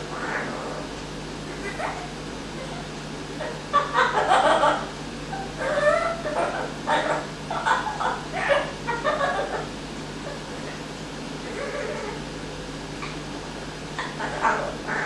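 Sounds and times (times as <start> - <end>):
parrot laugh-like calls: 1.5 - 12.2, 14.0 - 15.0.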